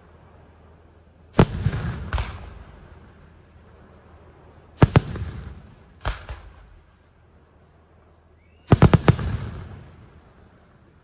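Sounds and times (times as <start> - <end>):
rolling echo: 0.0 - 11.0
firework shells bursting: 8.7 - 9.5.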